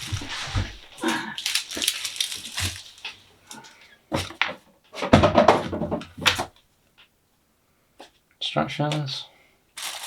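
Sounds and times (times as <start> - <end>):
packaging being handled: 0.0 - 4.4, 9.8 - 10.0
clatter and rustle: 0.0 - 6.5.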